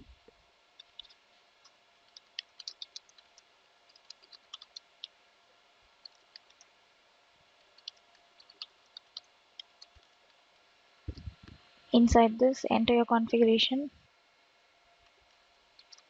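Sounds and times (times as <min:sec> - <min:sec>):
keyboard typing: 0:02.1 - 0:05.1, 0:06.0 - 0:06.7, 0:07.8 - 0:10.1.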